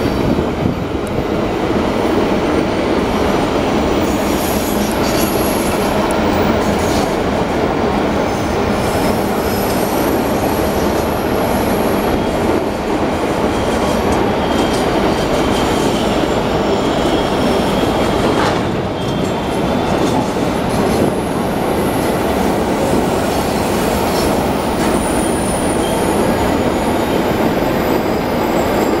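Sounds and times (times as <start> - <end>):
faint high wheel squeal: 13.5 - 19.9, 24.9 - 29.0.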